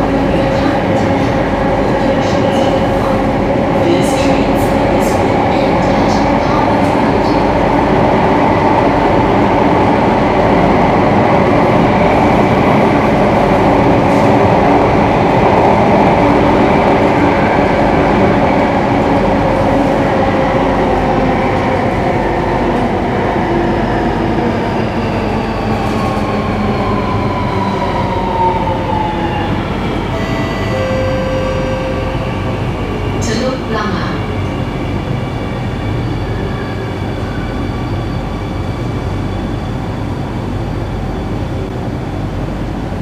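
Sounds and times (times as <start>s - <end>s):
train motor whine: 30.1s - 32.3s.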